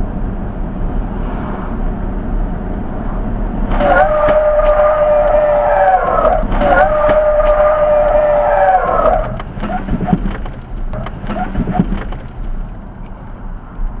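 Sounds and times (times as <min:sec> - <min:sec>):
truck engine and road noise: 0:00.0 - 0:14.0
vehicle horn long blast: 0:03.8 - 0:09.4.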